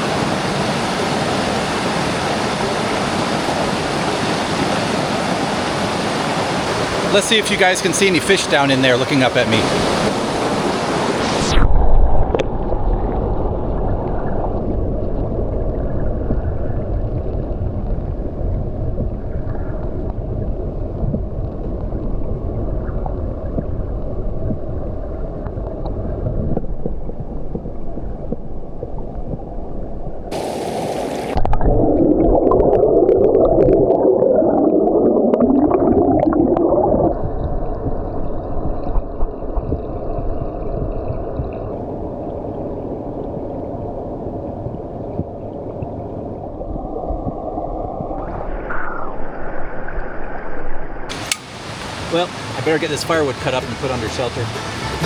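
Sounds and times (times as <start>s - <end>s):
muffled underwater water rushing: 0.0s - 55.0s
bubbling gurgling: 10.5s - 50.7s.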